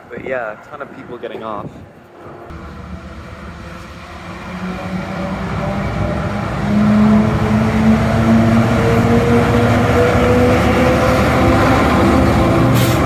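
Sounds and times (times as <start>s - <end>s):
locomotive diesel engine droning: 2.5s - 13.0s.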